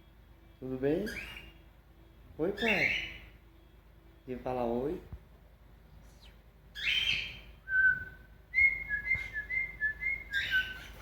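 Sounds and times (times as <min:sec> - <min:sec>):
cockatiel chirp: 0:01.0 - 0:01.6, 0:02.6 - 0:03.3, 0:06.1 - 0:07.6, 0:08.6 - 0:11.0
cockatiel whistling: 0:01.0 - 0:01.6, 0:06.2 - 0:11.0.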